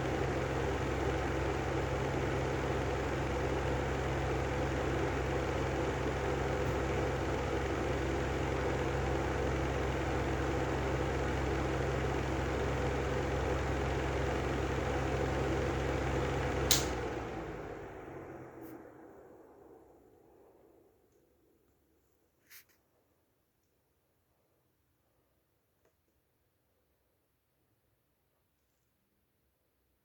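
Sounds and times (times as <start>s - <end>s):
exhaust fan motor hum: 0.0s - 21.1s
sharp click: 16.7s - 17.0s.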